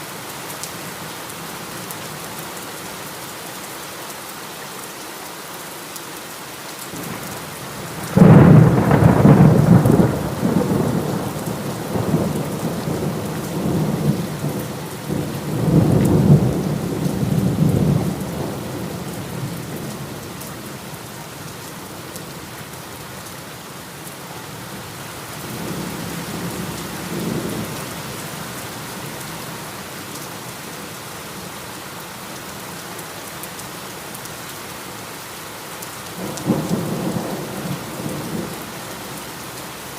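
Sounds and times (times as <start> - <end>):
heavy rain: 0.0 - 39.9
thunder rumbling: 7.1 - 20.3.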